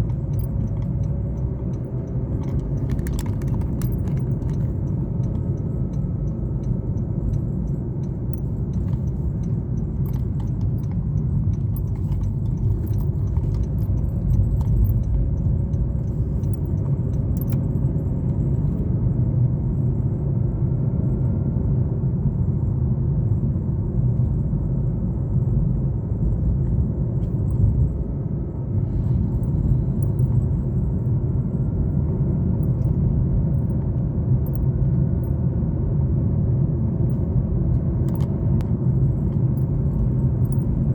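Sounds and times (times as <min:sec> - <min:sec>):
light rattling clicks: 0:00.0 - 0:18.4, 0:29.1 - 0:31.0, 0:37.1 - 0:40.9
car engine and tyre rumble: 0:00.0 - 0:40.9.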